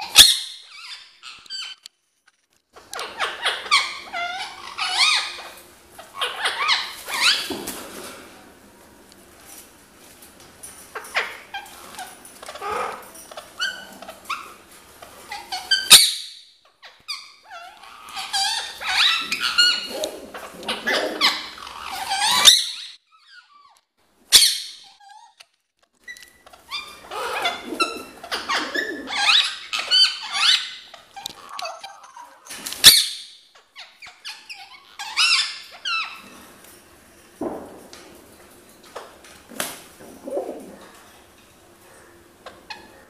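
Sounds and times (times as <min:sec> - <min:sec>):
parakeet chattering squeaky calls: 0:00.0 - 0:01.8, 0:03.0 - 0:07.4, 0:15.3 - 0:19.9, 0:20.7 - 0:23.7, 0:24.3 - 0:25.4, 0:26.6 - 0:36.2.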